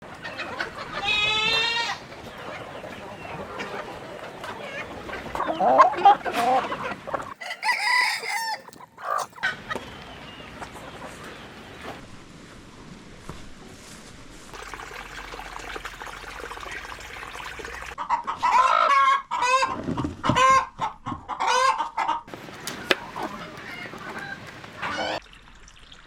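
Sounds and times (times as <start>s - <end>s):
chickens clucking: 0.0s - 12.0s, 17.8s - 25.2s
rooster crowing: 7.4s - 9.4s.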